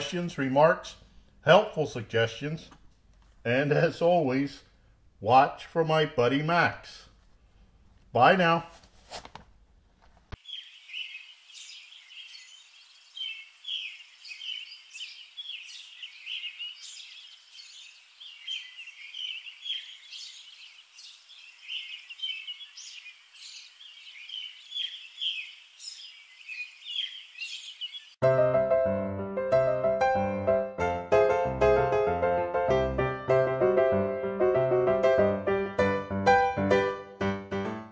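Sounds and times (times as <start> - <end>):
birds chirping: 10.4 - 28.2.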